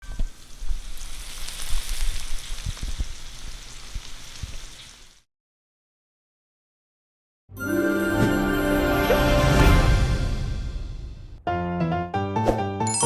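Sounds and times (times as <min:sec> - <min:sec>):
food sizzling in a hot pan: 0:00.0 - 0:05.3.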